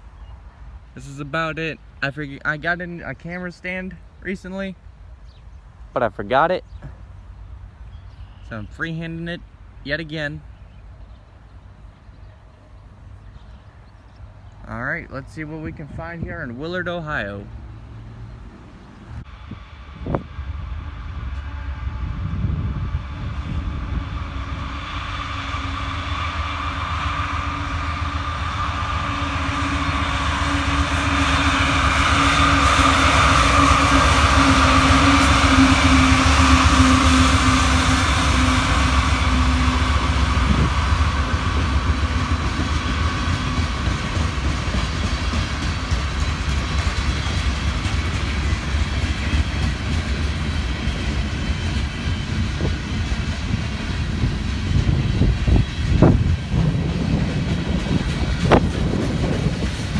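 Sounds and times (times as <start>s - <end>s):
diesel locomotive engines humming: 0.0s - 59.9s
train wheels on rails: 15.2s - 59.9s.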